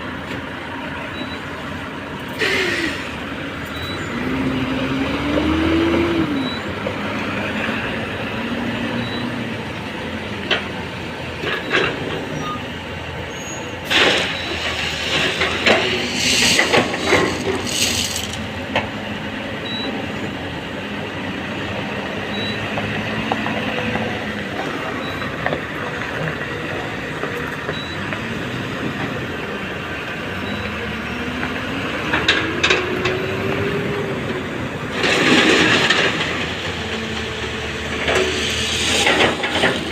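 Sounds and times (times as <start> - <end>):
excavator diesel engine under load: 0.0 - 39.9
hissing and clattering: 13.9 - 18.5, 37.9 - 39.9.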